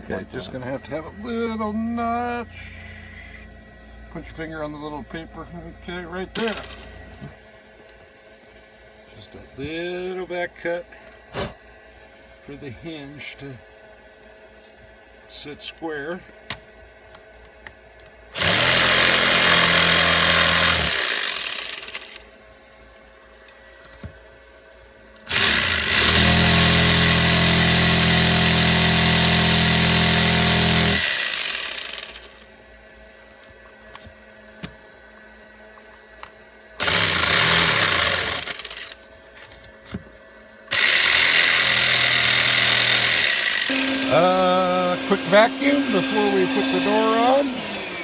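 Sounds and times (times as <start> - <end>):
power tool cutting wood: 6.4 - 7.0, 18.4 - 22.2, 25.3 - 32.4, 36.8 - 39.0, 40.7 - 48.0.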